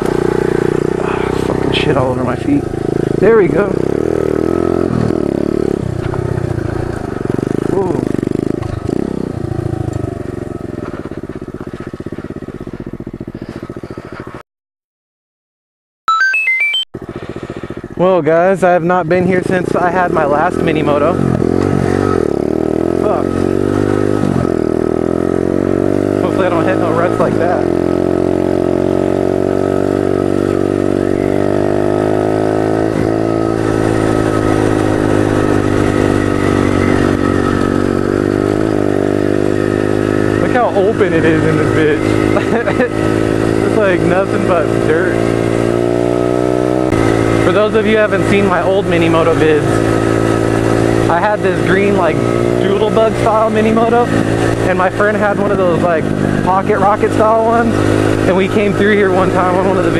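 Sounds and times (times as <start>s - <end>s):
motorbike engine slowing down: 0.0s - 14.4s, 17.0s - 59.9s.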